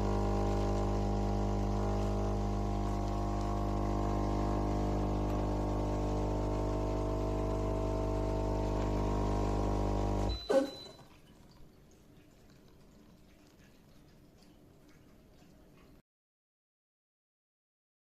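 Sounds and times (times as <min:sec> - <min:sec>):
coffee machine pump humming: 0:00.0 - 0:11.0.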